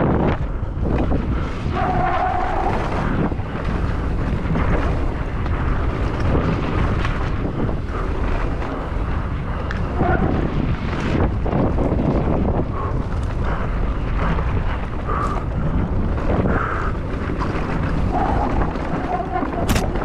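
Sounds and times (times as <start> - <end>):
wind buffeting the microphone: 0.0 - 20.0
tyre rumble: 16.6 - 20.0
bike rattling knocks: 19.5 - 20.0.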